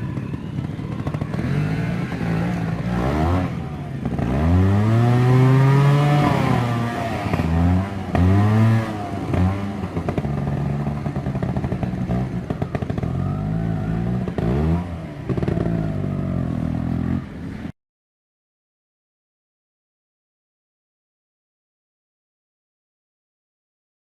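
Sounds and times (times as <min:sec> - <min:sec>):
motorcycle engine revving: 0:00.0 - 0:17.7.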